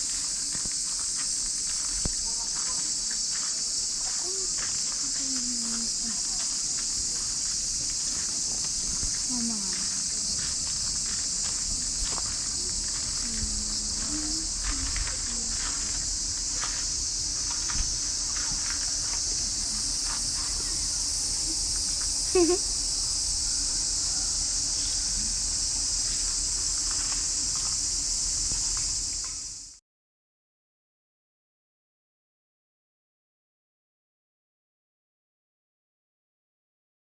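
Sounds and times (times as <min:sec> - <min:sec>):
insect chorus: 0:00.0 - 0:29.8
faint voices: 0:01.8 - 0:27.8.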